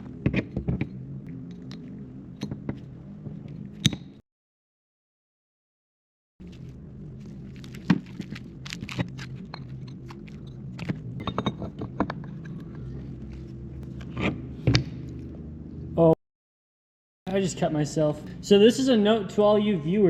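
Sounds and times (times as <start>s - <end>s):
steady low hum: 0.0s - 4.2s, 6.4s - 16.2s
metal engine parts clinking: 8.9s - 12.8s.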